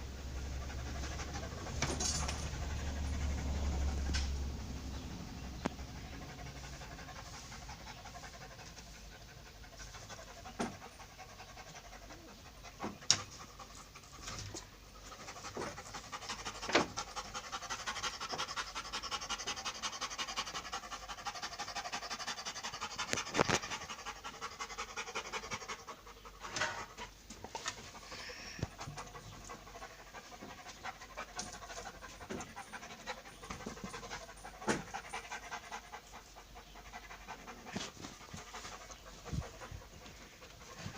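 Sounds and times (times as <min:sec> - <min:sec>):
pet panting: 0:00.1 - 0:40.9.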